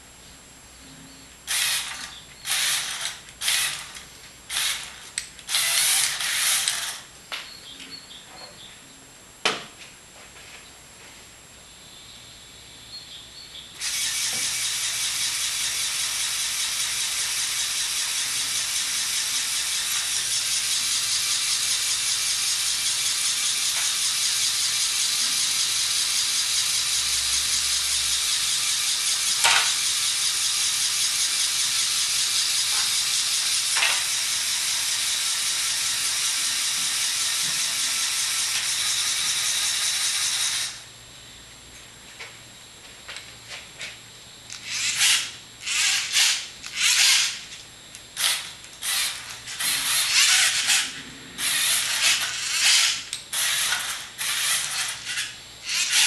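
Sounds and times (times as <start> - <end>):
toy motors whirring: 1.5 - 7.1, 13.8 - 40.8, 44.5 - 47.6, 48.2 - 56.0.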